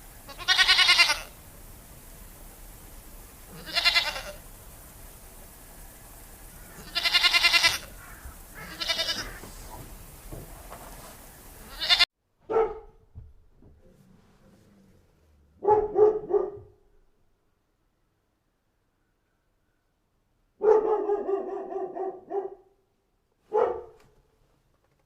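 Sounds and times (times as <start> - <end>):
goat bleating: 0.3 - 1.4, 3.5 - 4.4, 6.8 - 8.0, 8.6 - 9.5, 11.7 - 12.1
dog barking: 12.4 - 13.0, 15.6 - 16.8, 20.6 - 22.8, 23.4 - 24.2.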